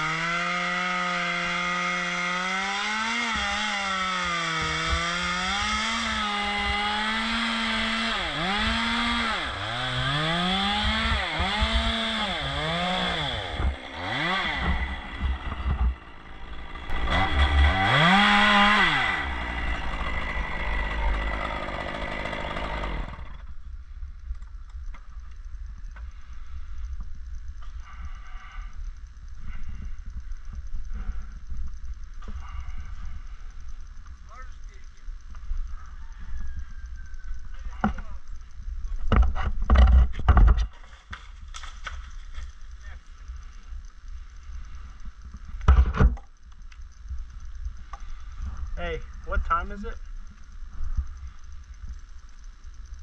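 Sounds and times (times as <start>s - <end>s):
chainsaw cutting wood: 0.0s - 23.5s.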